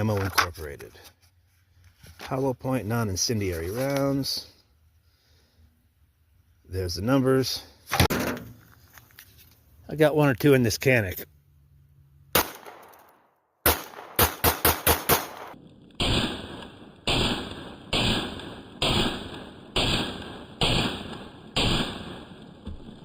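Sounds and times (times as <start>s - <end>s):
pistol shots: 12.3s - 23.0s.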